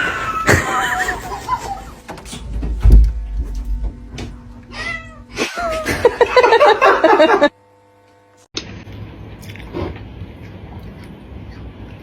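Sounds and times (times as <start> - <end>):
cat meowing: 4.7 - 5.4.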